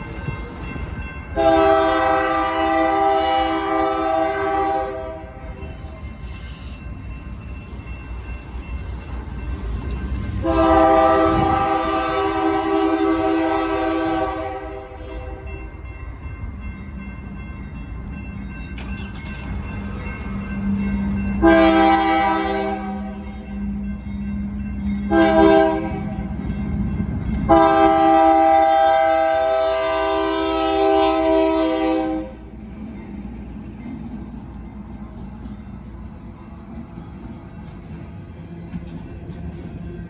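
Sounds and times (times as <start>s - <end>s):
train rumbling past: 0.0s - 40.0s
locomotive air horn: 1.4s - 5.3s, 10.4s - 15.4s, 21.4s - 23.2s, 25.1s - 26.1s, 27.5s - 32.5s.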